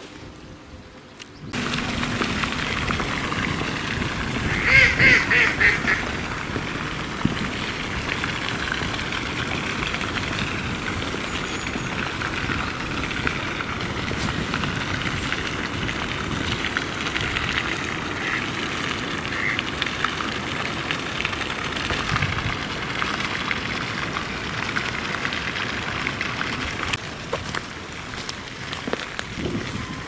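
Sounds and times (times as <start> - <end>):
wind noise: 0.0 - 18.4, 21.2 - 23.0, 26.7 - 30.0
duck quacking: 4.4 - 6.2, 18.2 - 18.4, 19.3 - 19.6.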